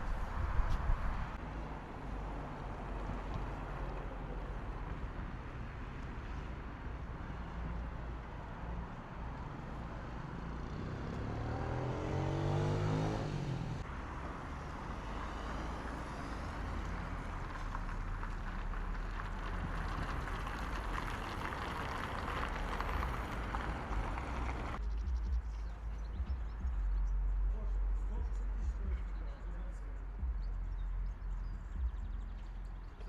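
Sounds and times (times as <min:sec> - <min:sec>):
low traffic hum: 0:00.0 - 0:33.0
vehicle engine speeding up: 0:10.1 - 0:25.3.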